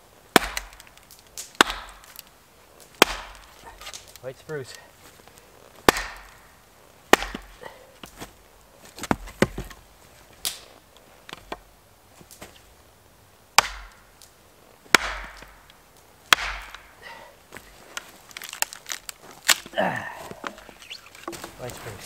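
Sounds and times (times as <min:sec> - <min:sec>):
axe chopping wood: 0:00.3 - 0:02.2, 0:03.0 - 0:04.2, 0:05.8 - 0:06.5, 0:07.1 - 0:08.2, 0:09.0 - 0:09.8, 0:13.6 - 0:14.1, 0:14.9 - 0:15.7, 0:16.3 - 0:17.1.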